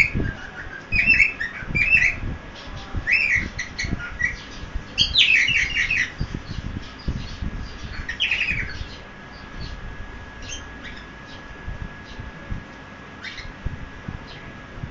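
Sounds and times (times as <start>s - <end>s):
cockatiel chirping: 0.0s - 2.2s, 3.1s - 6.2s.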